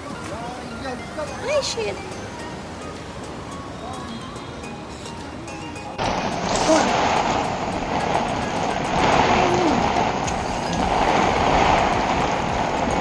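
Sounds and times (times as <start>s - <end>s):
heavy rain pouring: 6.0s - 13.0s.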